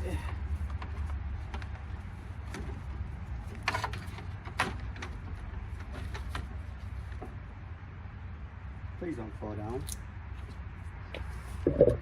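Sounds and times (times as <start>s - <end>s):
steady low rumble: 10.0s - 12.0s.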